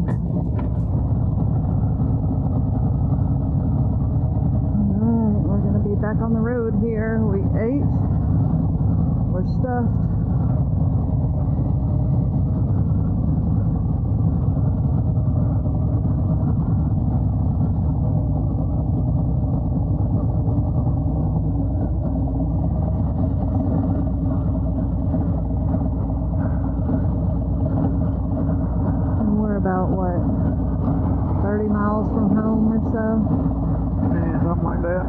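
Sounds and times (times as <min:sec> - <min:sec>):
motorcycle engine cruising: 0:00.0 - 0:01.0
road and wind noise: 0:00.0 - 0:35.0.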